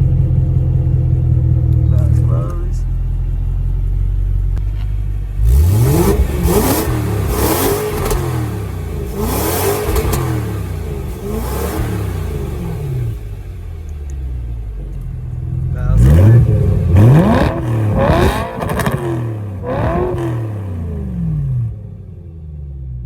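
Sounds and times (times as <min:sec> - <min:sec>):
car engine idling and revving: 0:00.0 - 0:23.0.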